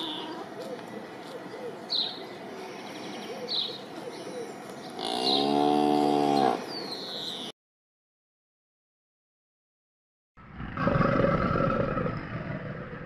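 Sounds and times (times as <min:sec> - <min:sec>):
cow mooing: 0:05.0 - 0:06.7.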